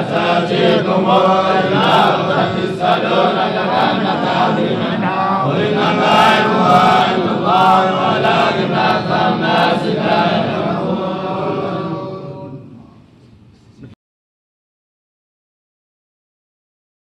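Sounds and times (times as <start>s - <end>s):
man chanting a recitation: 0.0s - 12.7s.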